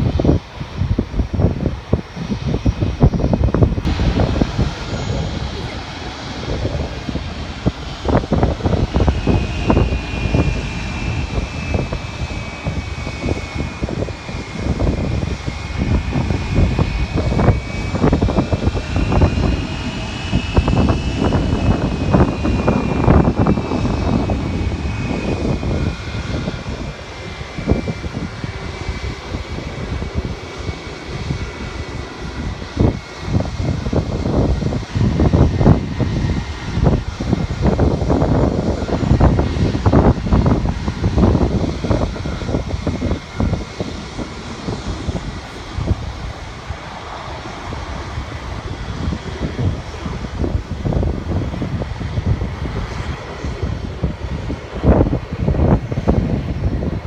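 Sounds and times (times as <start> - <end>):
jet engines whining: 0.0 - 57.0
wind buffeting microphone: 0.0 - 57.0.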